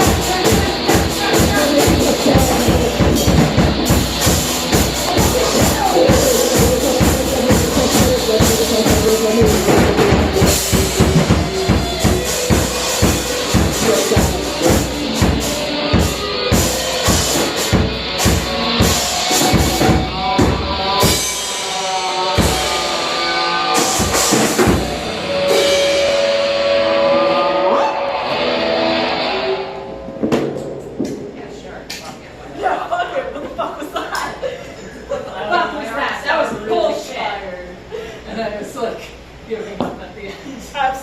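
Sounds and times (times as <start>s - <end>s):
fast drum kit beat: 0.0s - 27.0s
rock band playing: 0.0s - 31.9s.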